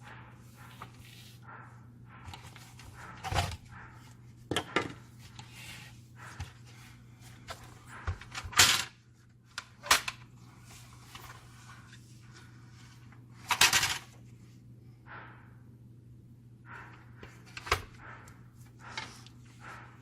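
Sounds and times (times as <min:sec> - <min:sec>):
steady low hum: 0:00.0 - 0:20.0
plastic and metal parts clattering: 0:02.2 - 0:03.8, 0:04.5 - 0:05.6, 0:06.3 - 0:11.7, 0:13.4 - 0:14.2, 0:16.9 - 0:18.0.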